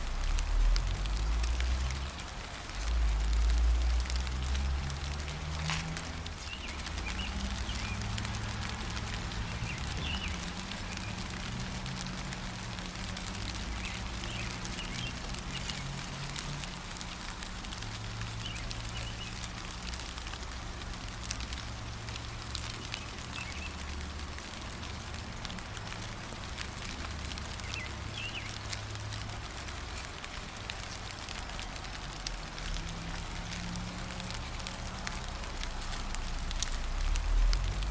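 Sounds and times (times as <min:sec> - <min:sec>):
gentle rain drops ticking: 0:00.0 - 0:37.9
bird chirps: 0:09.5 - 0:11.2, 0:22.8 - 0:23.8, 0:27.6 - 0:28.6.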